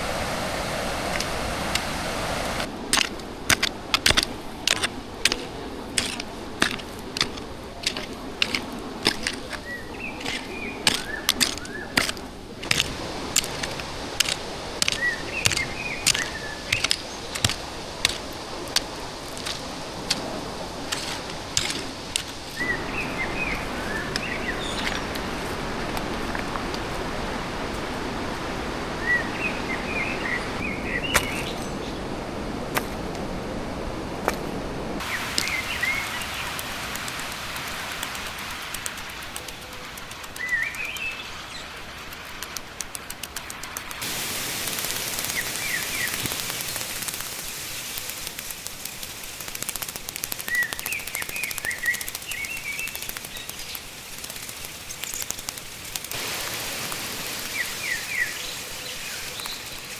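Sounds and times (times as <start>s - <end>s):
fast-flowing stream rushing: 0.0s - 59.9s
bird chirps: 20.9s - 25.6s, 44.7s - 56.1s, 57.2s - 59.9s.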